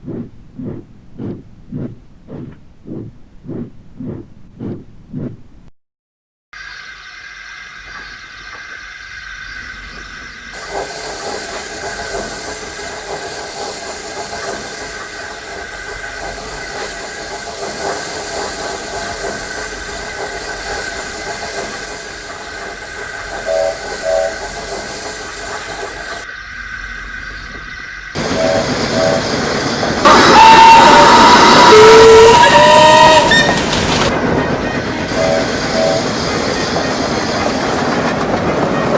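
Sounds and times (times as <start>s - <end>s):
steam locomotive hissing and running: 7.3s - 38.9s
train whistle toots: 23.4s - 24.5s, 28.2s - 29.4s, 30.0s - 37.5s.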